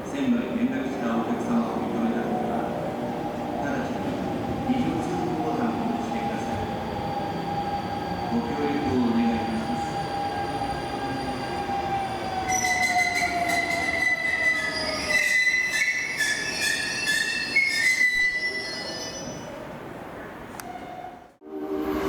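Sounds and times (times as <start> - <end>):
wheels and brakes squealing: 6.4 - 19.6
electric train whine: 21.4 - 22.0.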